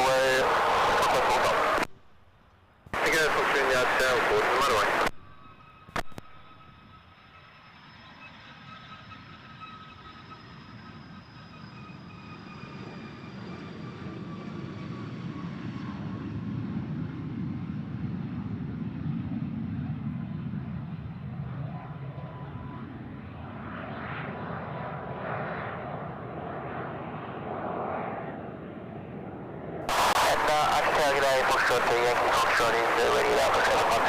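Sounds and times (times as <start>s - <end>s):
light aircraft engine passing: 6.5s - 34.0s.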